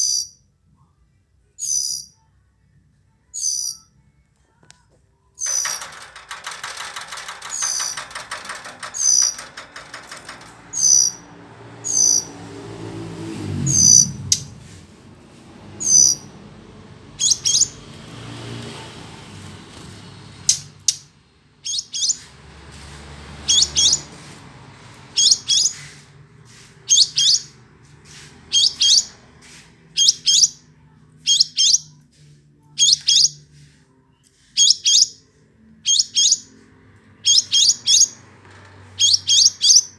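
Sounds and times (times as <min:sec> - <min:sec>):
bird chirping: 0:00.0 - 0:00.4, 0:01.6 - 0:02.3, 0:03.4 - 0:03.9, 0:05.4 - 0:12.4, 0:15.8 - 0:16.3, 0:17.2 - 0:17.8, 0:21.6 - 0:22.3, 0:25.2 - 0:26.0, 0:34.6 - 0:36.6, 0:37.2 - 0:38.2, 0:39.0 - 0:39.9
buzzy bird chatter: 0:03.4 - 0:03.8, 0:05.4 - 0:12.5, 0:15.8 - 0:16.4, 0:17.2 - 0:17.9, 0:19.8 - 0:24.3, 0:24.9 - 0:30.6, 0:35.9 - 0:39.9.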